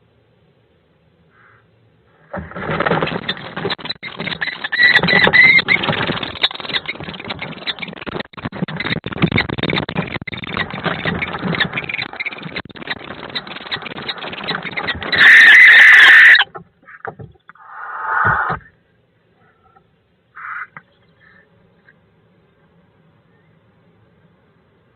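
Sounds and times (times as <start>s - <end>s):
harsh bird screeching: 1.3s - 18.8s, 20.4s - 21.4s
birds scuffling in wooden box: 2.2s - 17.5s.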